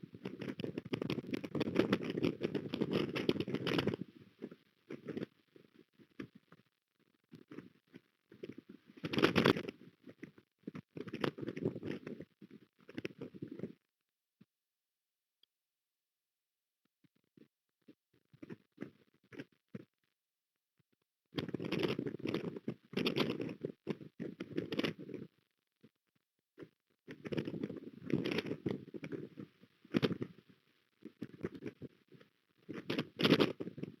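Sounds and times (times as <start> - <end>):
crackling rustle: 0.0 - 13.8, 21.4 - 25.4, 26.6 - 34.0.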